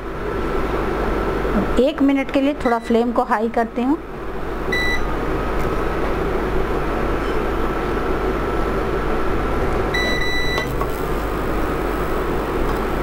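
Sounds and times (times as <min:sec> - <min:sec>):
induction cooktop hum and whine: 0:00.0 - 0:13.0
cooktop electronic beep: 0:04.7 - 0:05.1, 0:10.0 - 0:12.2.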